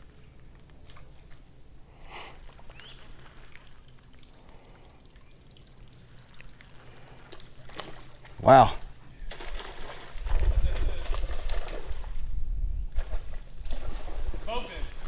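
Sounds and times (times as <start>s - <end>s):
water splash: 9.3s - 12.2s, 13.0s - 15.0s.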